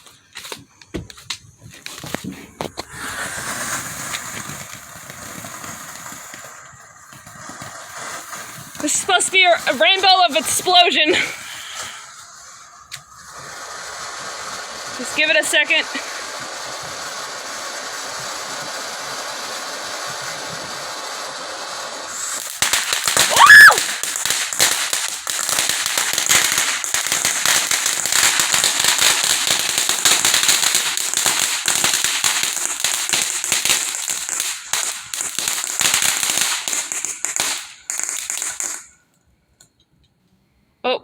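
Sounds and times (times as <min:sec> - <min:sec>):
firework hissing: 0:00.0 - 0:39.2
firework crackling and popping: 0:00.0 - 0:40.2
firework bang: 0:01.0 - 0:38.9
firework whistle: 0:01.7 - 0:39.0.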